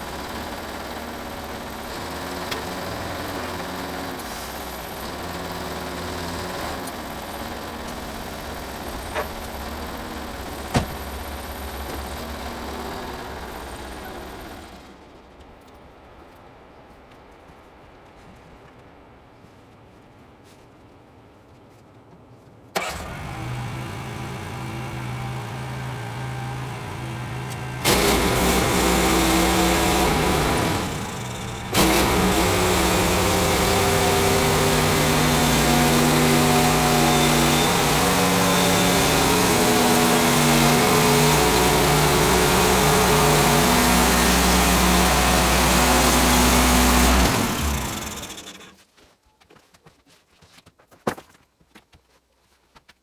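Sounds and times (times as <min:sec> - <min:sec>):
small gasoline engine running: 0:00.0 - 0:15.0, 0:22.8 - 0:48.8.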